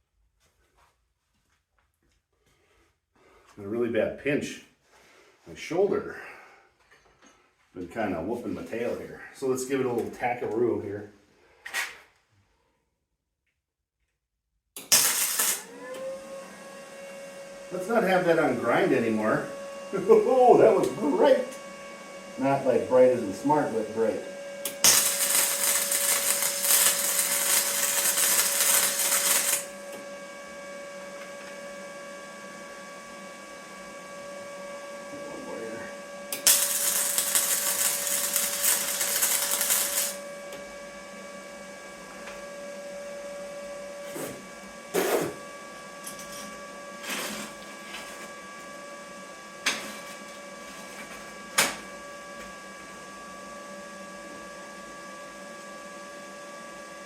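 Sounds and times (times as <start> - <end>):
welder crackling: 14.8 - 15.8, 24.6 - 29.9, 36.3 - 40.2.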